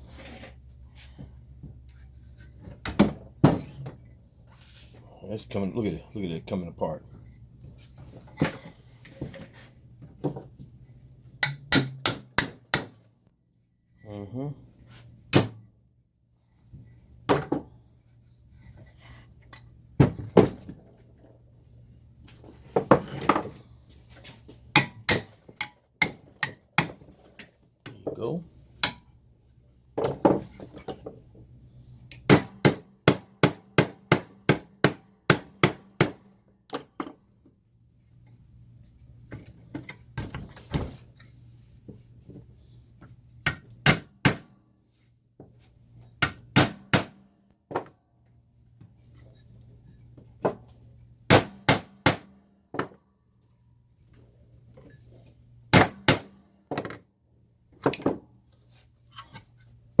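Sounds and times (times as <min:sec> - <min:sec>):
hammer striking metal chassis: 0:11.4 - 0:13.0.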